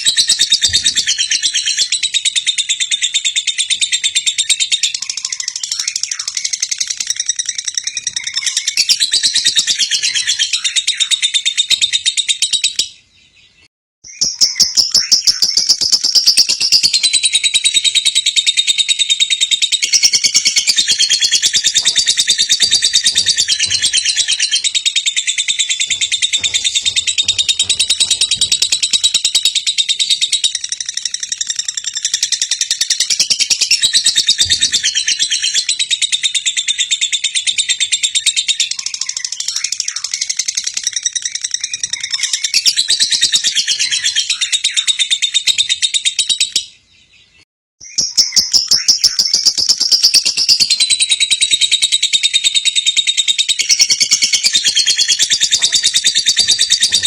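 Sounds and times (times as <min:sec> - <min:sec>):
lovebird chattering trill: 0:14.1 - 0:46.7, 0:47.9 - 0:57.0.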